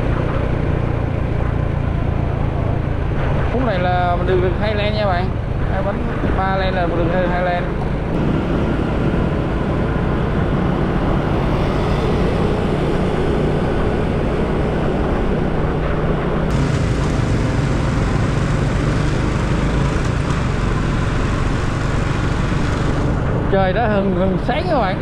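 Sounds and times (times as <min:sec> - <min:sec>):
motorcycle engine: 0:00.0 - 0:25.0
wind rush: 0:04.7 - 0:23.5.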